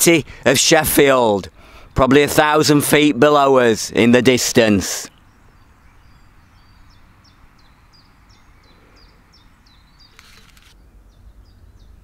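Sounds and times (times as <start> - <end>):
rustling hiss: 5.0 - 10.9
small bird chirping: 5.0 - 12.0.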